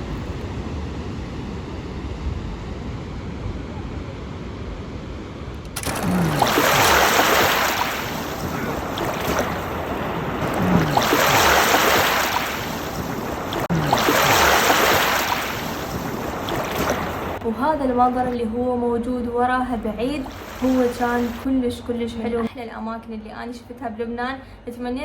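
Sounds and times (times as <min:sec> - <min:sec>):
sea waves breaking: 0:05.4 - 0:18.3, 0:20.0 - 0:21.5.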